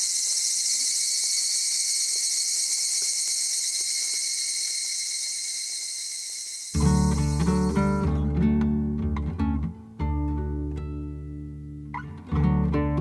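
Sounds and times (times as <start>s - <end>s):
high-pitched insect chorus: 0.0s - 8.2s
strummed acoustic guitar music: 6.8s - 13.0s.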